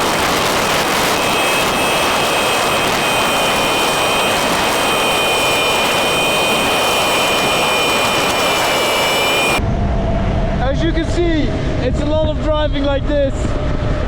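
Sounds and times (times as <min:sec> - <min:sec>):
high whining tones: 0:00.0 - 0:09.7
wind rushing on microphone: 0:00.0 - 0:14.0.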